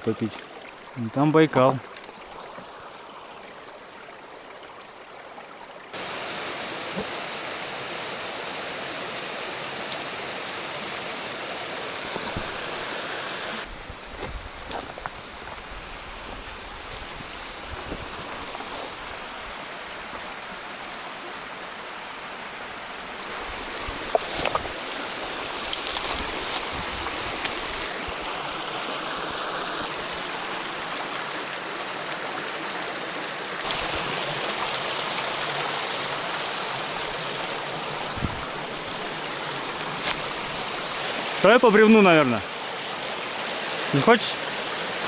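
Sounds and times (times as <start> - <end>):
stream water rushing: 0.0 - 45.0.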